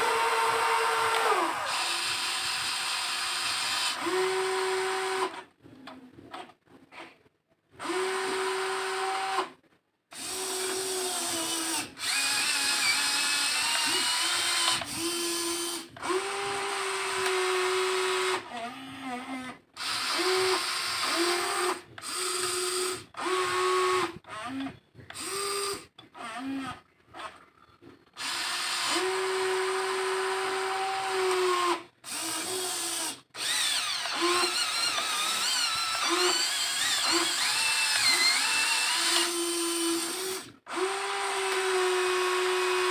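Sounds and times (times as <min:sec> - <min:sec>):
small electric motors whining: 0:32.1 - 0:42.9.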